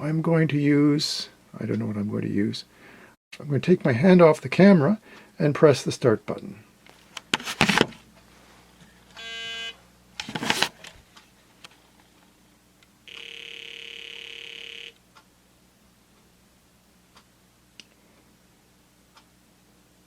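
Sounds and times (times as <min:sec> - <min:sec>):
handling noise: 0:06.9 - 0:08.3, 0:10.2 - 0:11.0
buzzy electronic game tone: 0:13.1 - 0:15.0.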